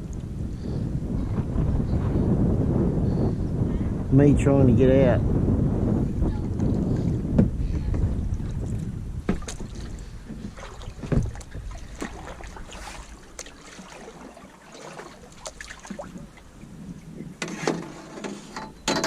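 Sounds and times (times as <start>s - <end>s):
wind rumbling on microphone: 0.0s - 19.0s
knocks against kayak hull: 9.2s - 12.5s.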